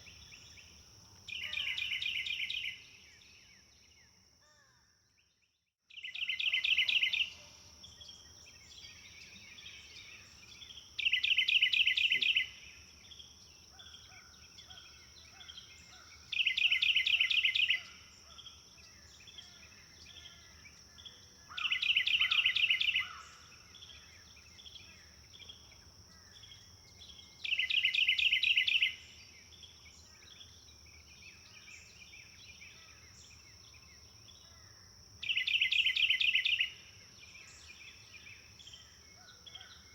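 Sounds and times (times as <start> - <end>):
songbird trilling: 0.0 - 2.8, 6.0 - 7.4, 8.6 - 12.6, 13.8 - 18.4, 19.0 - 25.5, 26.2 - 29.0, 35.2 - 36.8.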